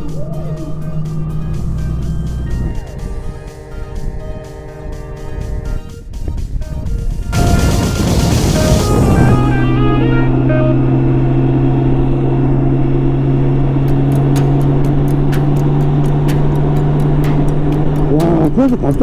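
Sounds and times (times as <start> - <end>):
music bed: 0.0 - 11.4, 13.8 - 19.0
motorcycle engine humming steadily: 0.0 - 19.0.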